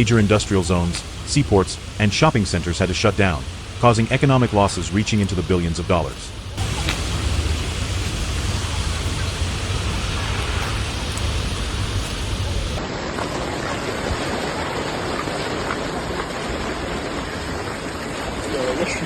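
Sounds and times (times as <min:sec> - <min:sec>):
heavy rain hissing: 0:00.0 - 0:12.8
wind rumbling on microphone: 0:00.0 - 0:18.6.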